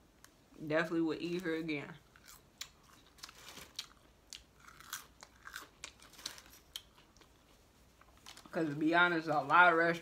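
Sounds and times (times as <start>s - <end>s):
person chewing crunchy food: 2.0s - 8.5s.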